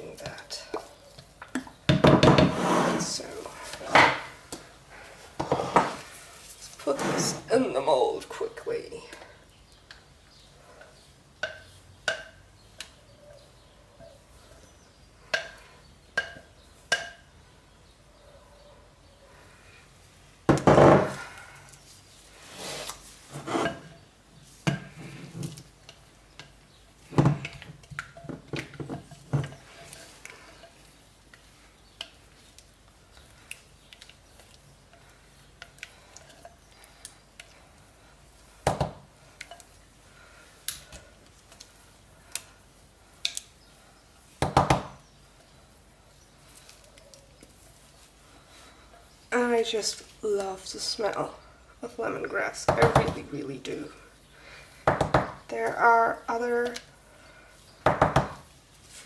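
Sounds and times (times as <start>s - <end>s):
utensil scraping and knocking a pot: 0.0s - 7.7s, 9.9s - 12.9s, 14.0s - 17.4s, 22.4s - 39.9s.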